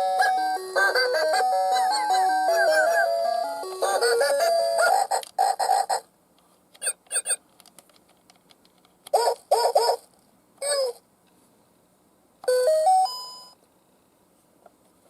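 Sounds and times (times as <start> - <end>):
electronic tune: 0.0 - 4.9
pitched chirping sound effects: 0.1 - 6.0.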